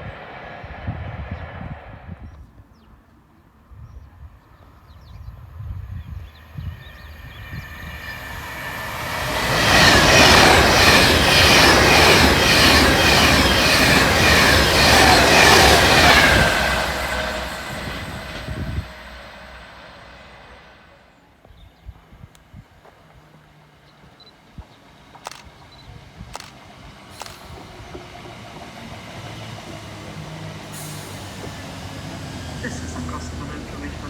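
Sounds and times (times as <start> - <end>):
train passing at speed: 0.0 - 34.0
high ringing of wheels on track: 5.2 - 21.2.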